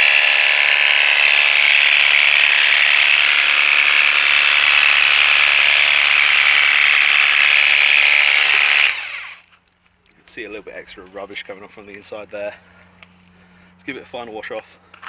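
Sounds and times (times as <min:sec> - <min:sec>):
pressure washer pump whining: 0:00.0 - 0:09.5.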